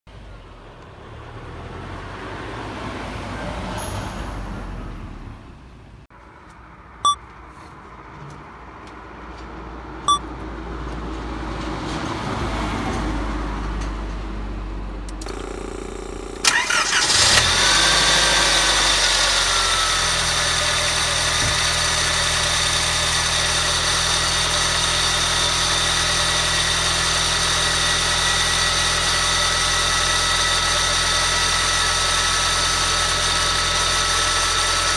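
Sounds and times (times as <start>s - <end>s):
car engine starting and idling: 12.8s - 34.9s
high-pitched pulley whine: 15.2s - 34.9s.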